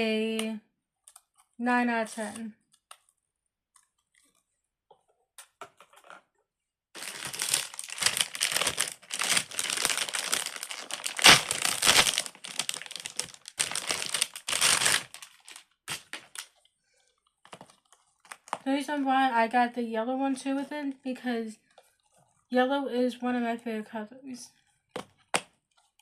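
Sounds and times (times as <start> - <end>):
plastic crinkling and rustling: 7.0 - 18.7.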